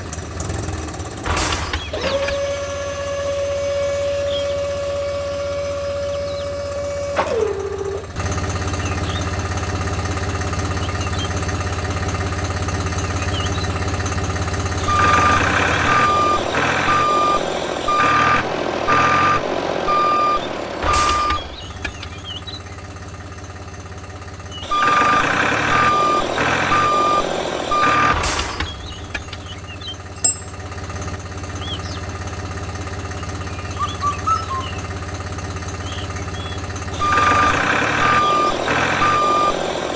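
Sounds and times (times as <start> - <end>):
low motor hum: 0.0 - 39.9
electronic reversing beeps: 14.8 - 21.6, 24.6 - 28.2, 35.9 - 39.8.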